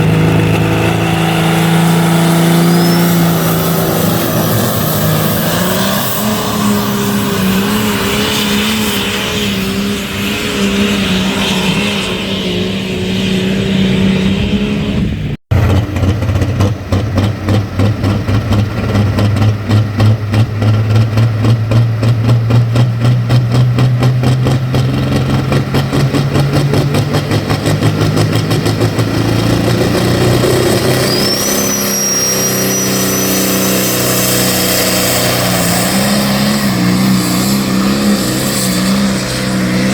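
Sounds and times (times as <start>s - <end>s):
vehicle engine running: 0.0s - 9.4s, 12.9s - 39.9s
high whistle: 1.8s - 9.0s, 30.6s - 36.3s.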